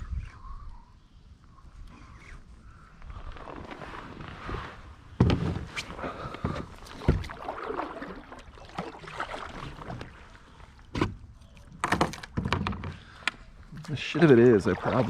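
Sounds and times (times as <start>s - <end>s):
water splashing around kayak: 3.5s - 13.2s, 13.8s - 15.0s
knocks against hull: 5.2s - 5.7s, 6.4s - 7.4s, 10.9s - 11.2s, 11.8s - 13.0s.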